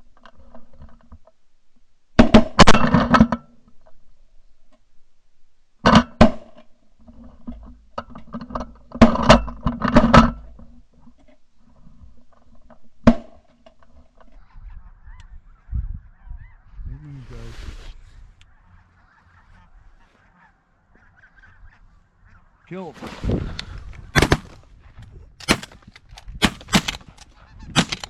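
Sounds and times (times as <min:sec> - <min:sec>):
geese honking: 0:18.4 - 0:22.9
shotgun blasts: 0:24.2 - 0:24.6, 0:25.4 - 0:27.2, 0:27.8 - 0:28.0.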